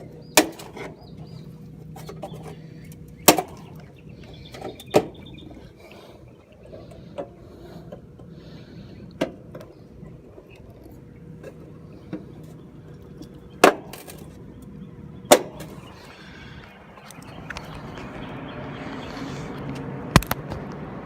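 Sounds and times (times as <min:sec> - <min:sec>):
faint steady hum: 0:00.0 - 0:19.7
sharp clicks and knocks: 0:20.1 - 0:20.8.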